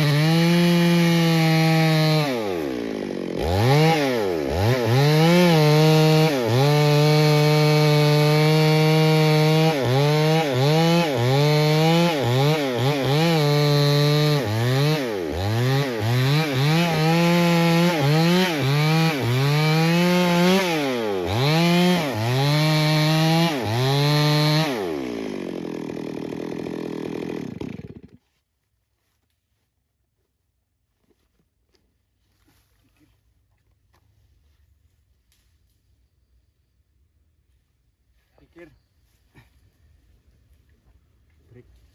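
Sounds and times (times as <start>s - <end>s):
chainsaw cutting and revving: 0.0s - 28.3s.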